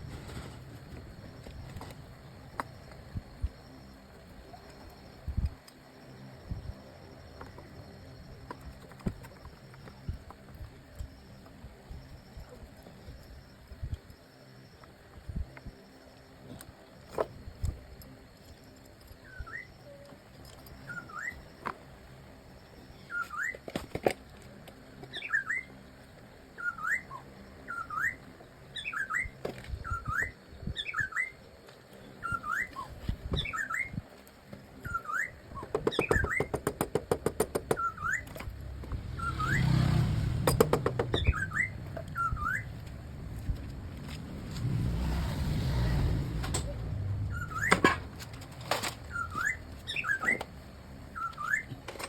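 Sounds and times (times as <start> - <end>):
bird whistled calls: 19.2 - 20.0, 20.8 - 21.5, 23.0 - 23.6, 25.1 - 25.8, 26.6 - 31.4, 32.2 - 34.0, 34.8 - 36.6, 37.8 - 38.4, 39.1 - 39.8, 40.9 - 42.8, 47.3 - 48.0, 49.1 - 50.5, 51.1 - 51.8.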